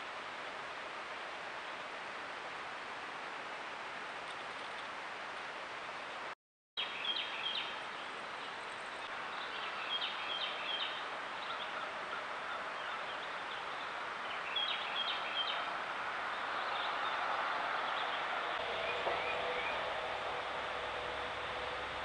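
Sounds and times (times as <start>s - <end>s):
woodland background hiss: 0.0s - 22.0s
wild birds calling: 8.4s - 22.0s.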